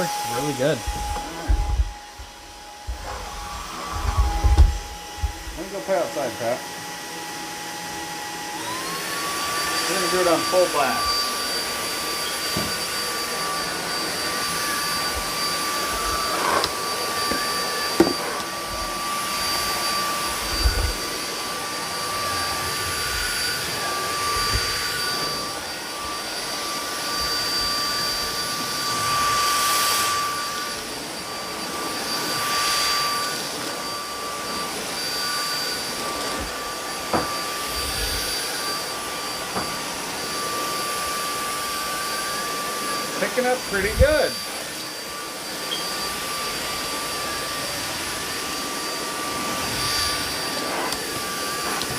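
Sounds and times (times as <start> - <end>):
vacuum cleaner running: 0.0 - 51.9
vacuum floor head knocks: 17.2 - 18.2.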